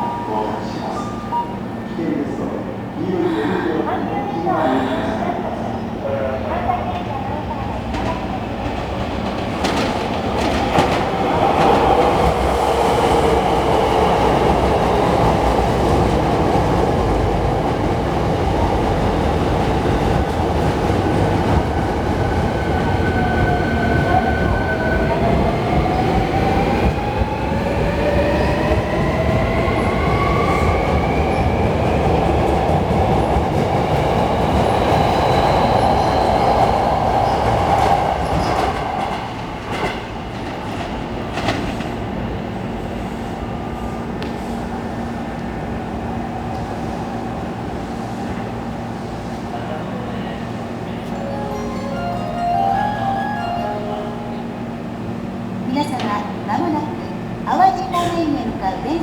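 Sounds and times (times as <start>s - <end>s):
train wheels rumbling on rails: 6.7s - 51.2s.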